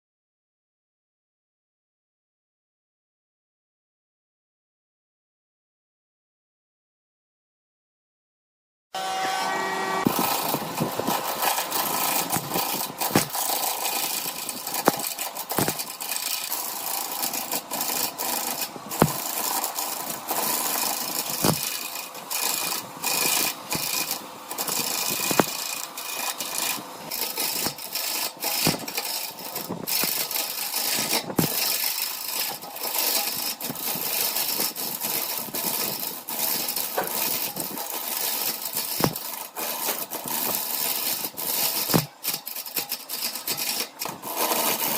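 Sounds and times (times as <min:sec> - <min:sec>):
lathe gritty hiss: 0:09.0 - 0:44.9
clicks and sharp knocks: 0:10.0 - 0:16.5, 0:18.6 - 0:19.7, 0:21.2 - 0:21.8, 0:23.3 - 0:25.6, 0:28.6 - 0:29.0, 0:39.0 - 0:39.3.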